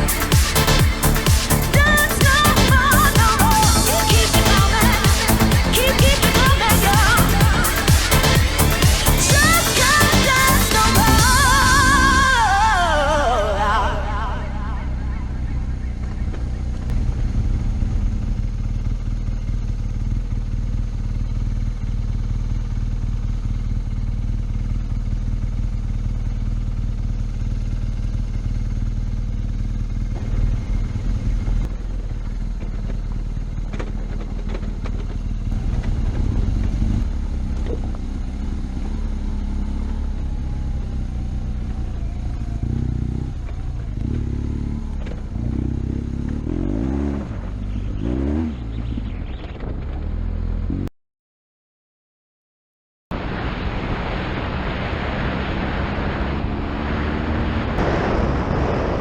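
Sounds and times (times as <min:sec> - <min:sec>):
motorcycle engine running: 0:00.0 - 0:50.9, 0:53.4 - 0:59.0
knocks and clatter: 0:30.0 - 0:38.1.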